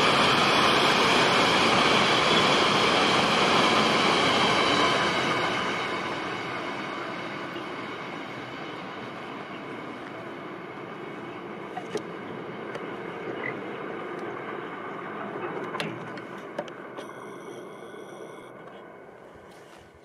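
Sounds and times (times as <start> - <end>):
passing train running noise: 0.0 - 20.0.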